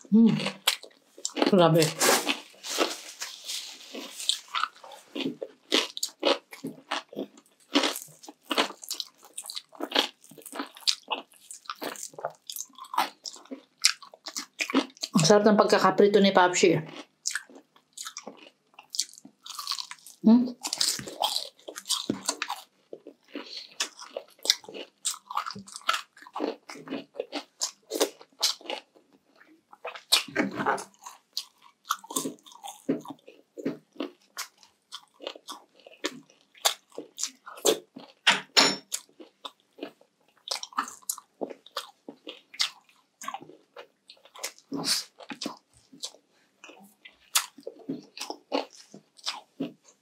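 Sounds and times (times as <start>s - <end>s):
crunching crispy pork: 0.4s - 15.2s, 16.9s - 38.2s.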